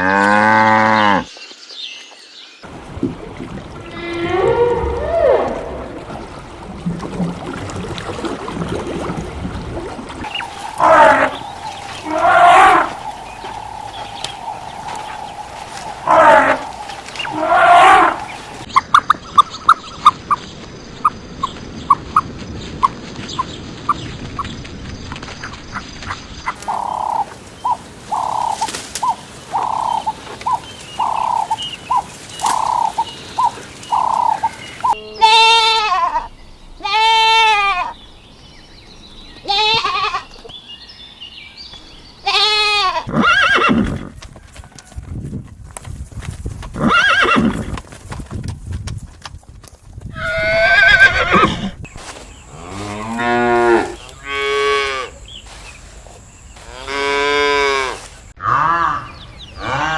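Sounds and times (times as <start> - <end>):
frog croaking: 10.2 - 18.7, 26.6 - 36.3
farm animal calls: 10.2 - 19.1, 26.5 - 38.0, 39.4 - 40.5, 42.2 - 44.0, 50.2 - 59.9.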